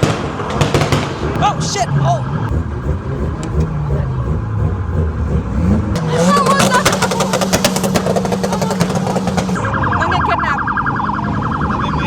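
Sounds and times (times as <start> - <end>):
car engine revving: 0.0 - 9.9
crackling exhaust pops: 2.5 - 4.0, 5.9 - 9.6.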